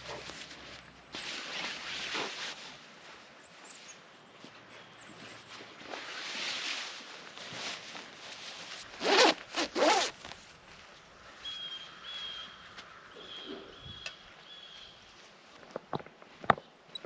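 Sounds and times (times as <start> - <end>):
zipper rasping: 9.0 - 10.2.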